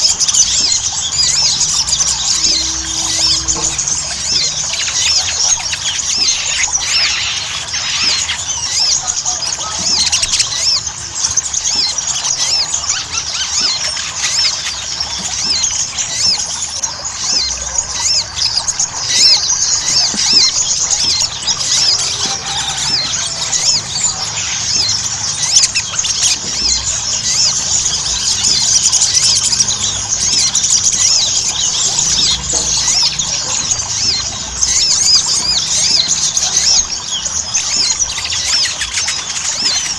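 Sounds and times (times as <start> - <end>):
bird high rapid chirps: 0.0 - 39.9.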